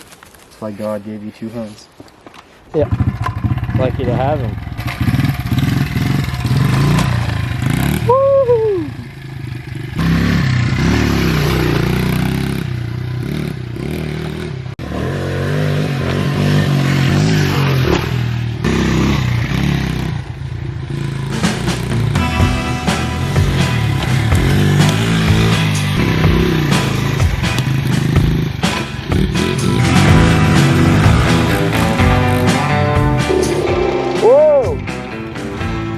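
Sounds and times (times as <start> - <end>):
motorbike engine revving: 2.8 - 35.9
rider shouting: 8.0 - 9.1, 31.3 - 34.9.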